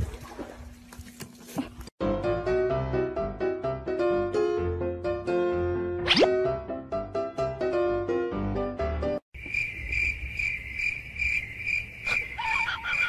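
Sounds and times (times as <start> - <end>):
piano background music: 2.0 - 9.2
cricket chirping: 9.4 - 13.0.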